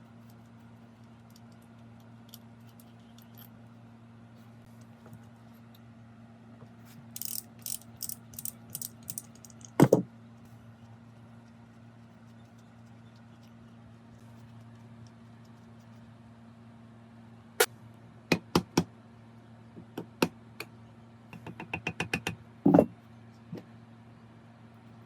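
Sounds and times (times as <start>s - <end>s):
steady low hum: 0.0s - 21.7s
small metal parts clinking: 7.1s - 9.9s.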